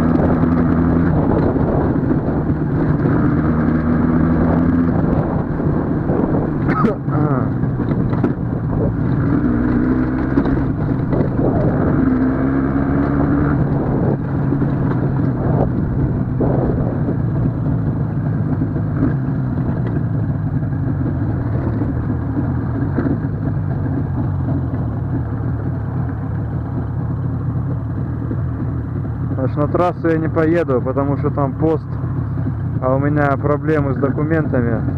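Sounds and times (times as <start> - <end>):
two-stroke motorcycle engine running: 0.0 - 34.9.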